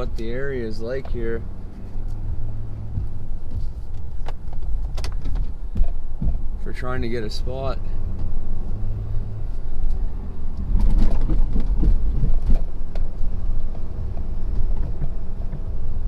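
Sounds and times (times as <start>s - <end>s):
engine knocks: 2.8s - 6.7s, 10.6s - 16.0s.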